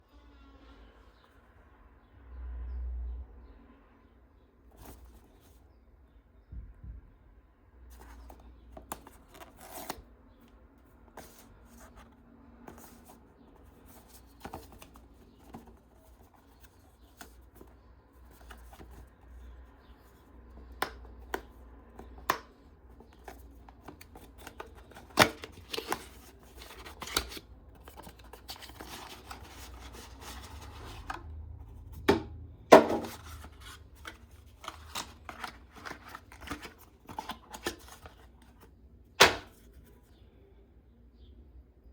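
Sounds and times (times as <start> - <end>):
packaging clicks and taps: 32.8 - 38.2
packaging rustling: 32.8 - 38.5.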